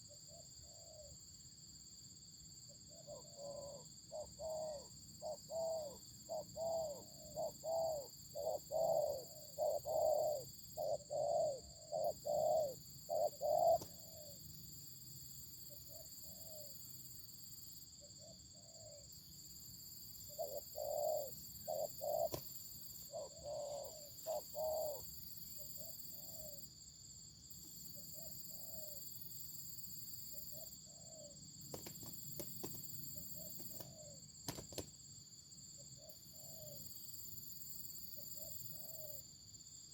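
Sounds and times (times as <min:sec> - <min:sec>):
doves cooing: 0:02.9 - 0:14.4, 0:20.3 - 0:22.5, 0:23.1 - 0:25.1.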